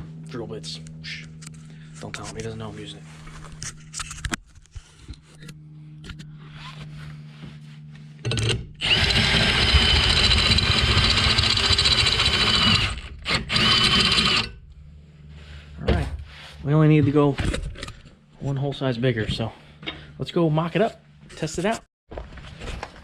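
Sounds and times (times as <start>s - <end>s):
power drill cutting steel: 8.8s - 14.6s.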